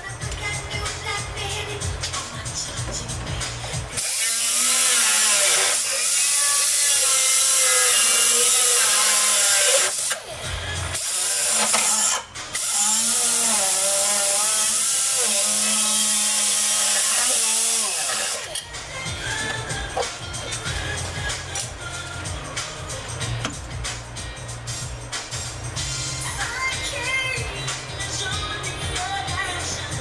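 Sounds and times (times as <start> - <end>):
power tool grinding sheet metal: 3.5 - 23.4.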